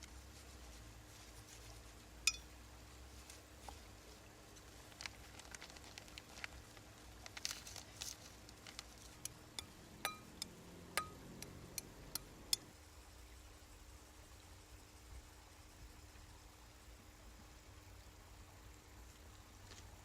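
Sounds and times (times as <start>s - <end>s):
small hard objects clinking: 2.3s - 2.5s, 4.9s - 11.5s.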